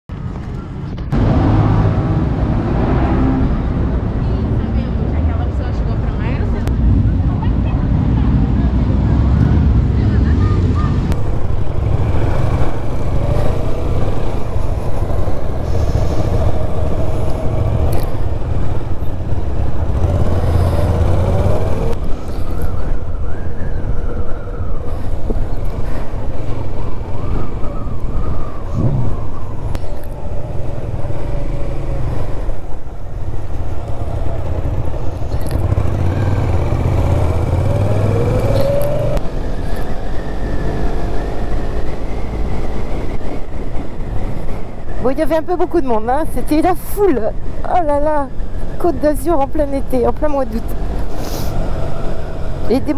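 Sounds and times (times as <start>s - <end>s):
wind rumble on microphone: 0.2s - 52.9s
motorcycle engine revving: 11.1s - 22.0s, 33.4s - 39.6s.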